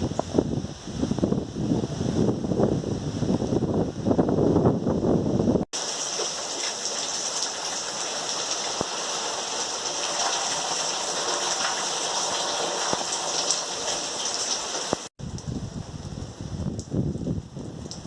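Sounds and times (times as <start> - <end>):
light rain hissing: 5.8 - 18.0.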